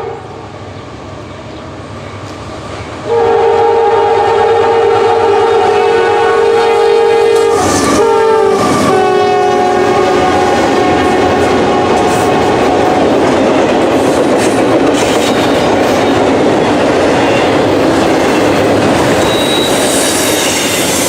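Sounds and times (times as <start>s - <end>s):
passing train rumble: 0.0s - 21.0s
locomotive air horn blast: 3.1s - 12.3s.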